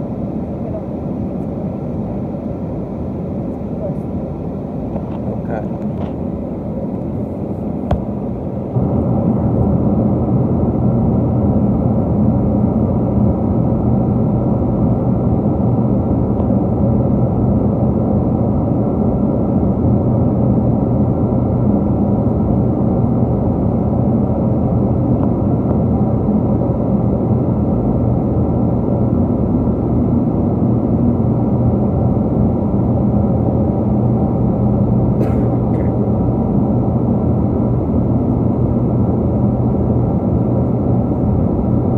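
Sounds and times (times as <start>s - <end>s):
airplane cabin engine roar: 0.0s - 41.9s
faint hum: 0.0s - 41.9s.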